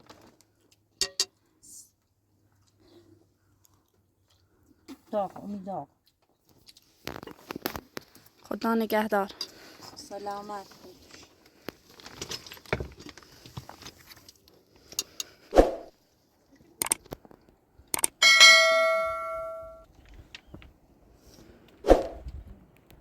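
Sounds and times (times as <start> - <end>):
metal object ringing: 18.2 - 19.8.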